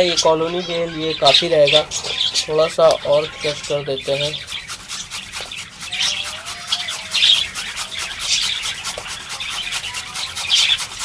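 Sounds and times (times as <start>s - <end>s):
carrot being crushed: 4.0s - 11.0s.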